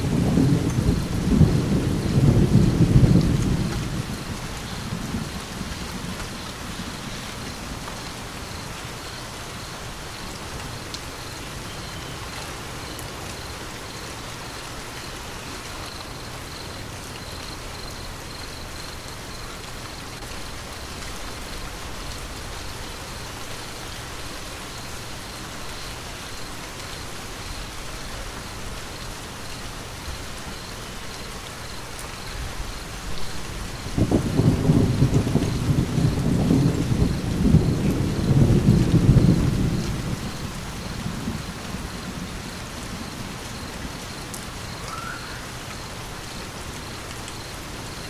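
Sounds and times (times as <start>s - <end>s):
low rumble of thunder: 0.0s - 10.7s, 32.3s - 47.5s
steady rain hiss: 0.0s - 48.0s.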